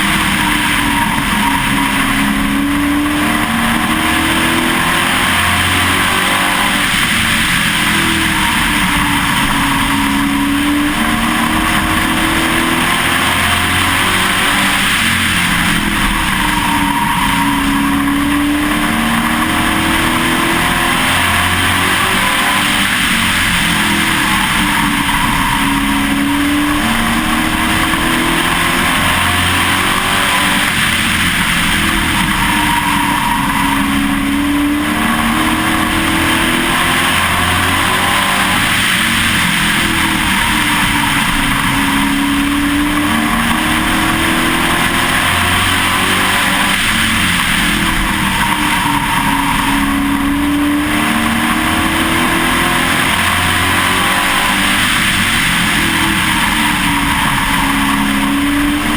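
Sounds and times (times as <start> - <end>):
race truck engine revving: 0.0 - 58.9.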